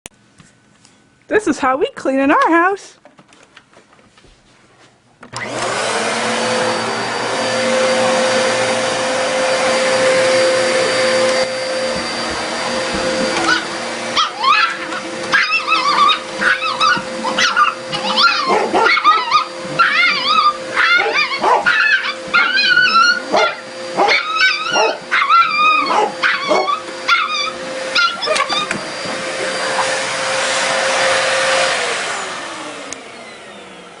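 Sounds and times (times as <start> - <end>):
vacuum cleaner motor whine: 5.2 - 34.0
dog barking: 14.2 - 28.4.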